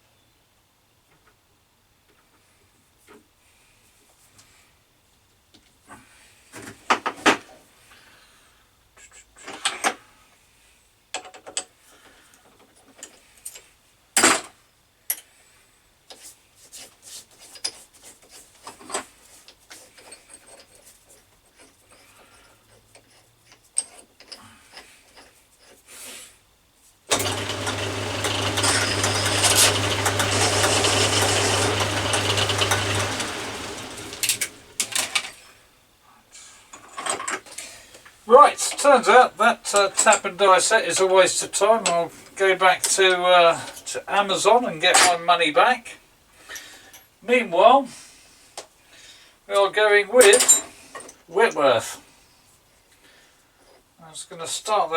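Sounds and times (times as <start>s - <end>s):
electric motor humming: 27.1s - 35.2s
metal tools clicking and knocking: 50.2s - 51.2s.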